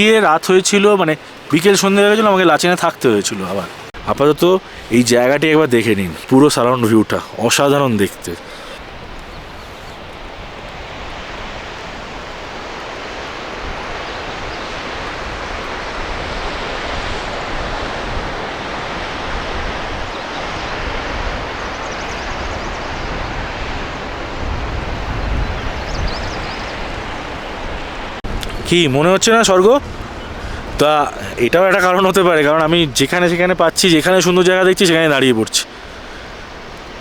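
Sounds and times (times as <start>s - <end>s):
steady rushing outdoor noise: 0.0s - 37.0s
wind buffeting microphone: 8.4s - 33.6s.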